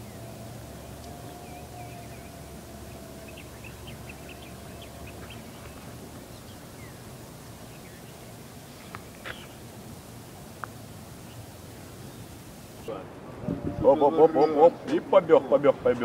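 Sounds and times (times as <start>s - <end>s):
birds chirping: 0.0s - 13.0s, 13.8s - 15.8s.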